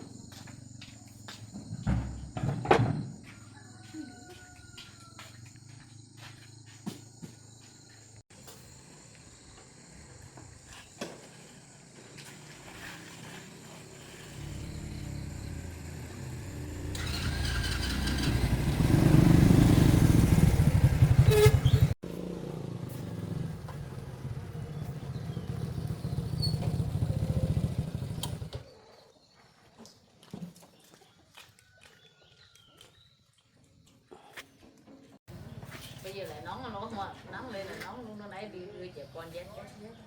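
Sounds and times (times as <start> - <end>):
motor vehicle engine running: 14.0 - 28.6.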